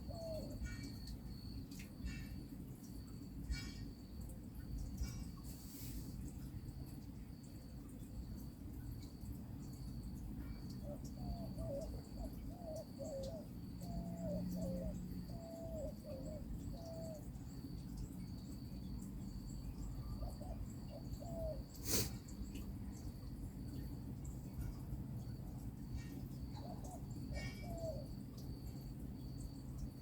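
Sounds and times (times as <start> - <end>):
bird cooing: 0.0 - 1.0, 10.7 - 17.3, 20.0 - 21.7, 26.5 - 28.2.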